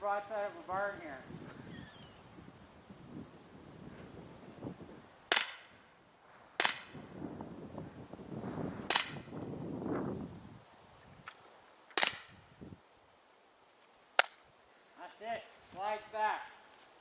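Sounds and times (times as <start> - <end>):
air pistol shots: 5.3 - 5.8, 6.6 - 7.1, 8.9 - 9.3, 12.0 - 12.4.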